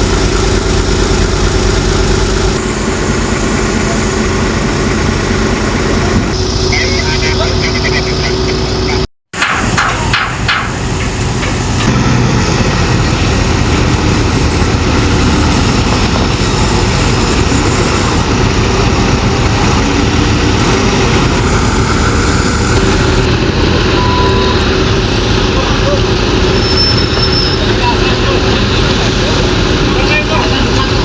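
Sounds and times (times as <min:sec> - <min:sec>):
diesel engine running: 0:00.0 - 0:31.0
sharp metallic knocks: 0:09.3 - 0:12.0.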